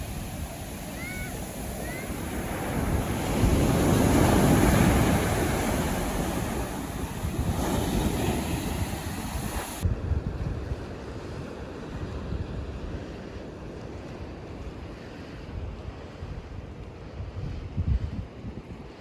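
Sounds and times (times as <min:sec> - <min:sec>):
sea waves breaking on beach: 0:00.0 - 0:09.8
wind rumbling on microphone: 0:00.0 - 0:19.0.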